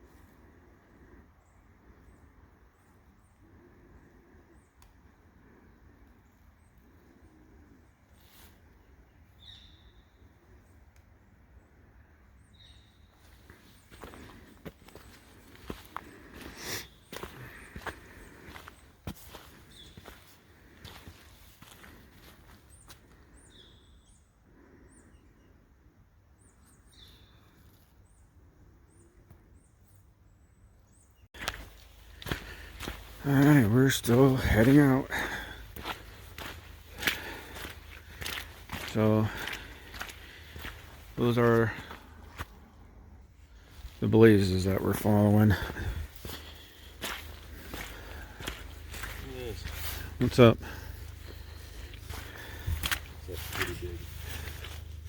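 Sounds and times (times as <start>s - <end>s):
faint high-pitched bird chirps: 9.2s - 10.4s, 12.4s - 13.8s
high bird chirp: 9.3s - 10.3s.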